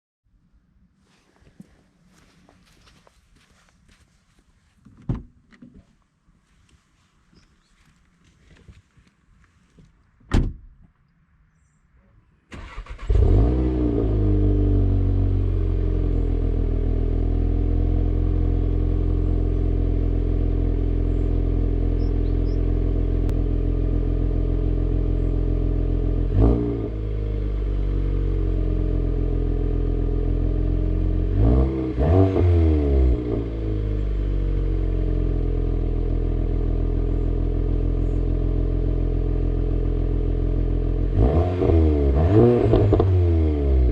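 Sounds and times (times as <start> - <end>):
car engine starting and revving: 12.5 - 43.9.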